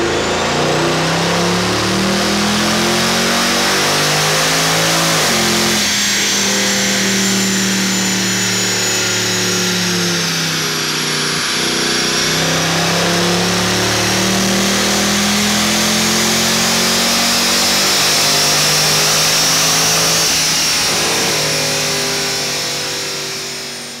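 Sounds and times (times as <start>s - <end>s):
car engine running under load: 0.0s - 24.0s.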